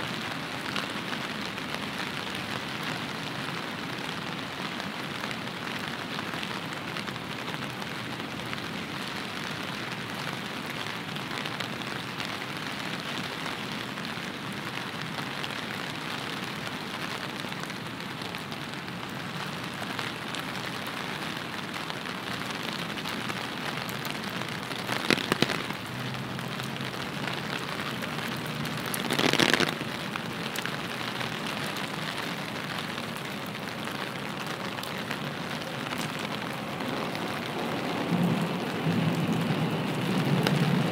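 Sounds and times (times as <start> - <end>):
rain falling on street: 0.0 - 40.9
sharp clicks: 29.1 - 29.7.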